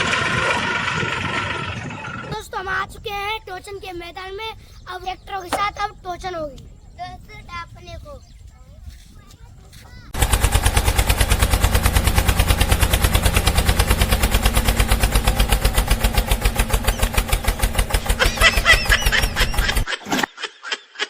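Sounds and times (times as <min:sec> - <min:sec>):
tractor engine chugging: 0:10.1 - 0:19.9.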